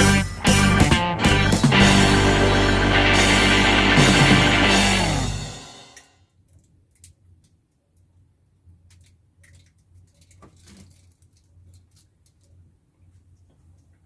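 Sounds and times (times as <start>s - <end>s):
music: 0.0s - 6.1s.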